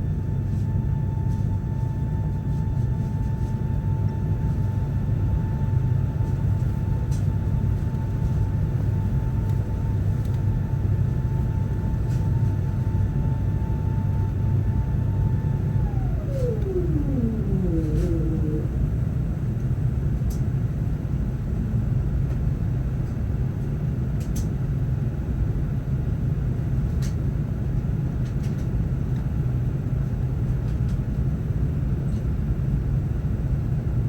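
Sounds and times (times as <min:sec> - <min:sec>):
aircraft cabin rumble: 0:06.2 - 0:19.1
engine whine sliding down: 0:11.4 - 0:19.2.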